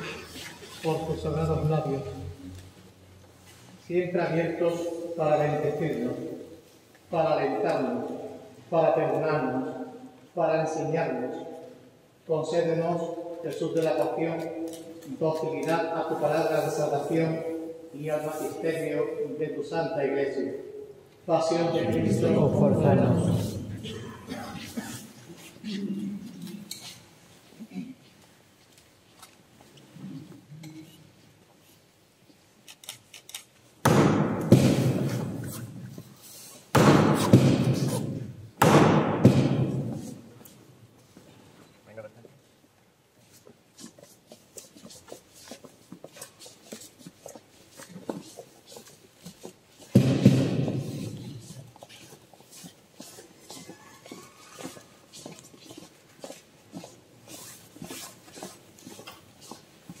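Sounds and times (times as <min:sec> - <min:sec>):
loud thuds echoing: 0:33.8 - 0:35.5, 0:36.7 - 0:40.2, 0:49.9 - 0:51.2
soft knocks and shuffling: 0:40.0 - 1:00.0.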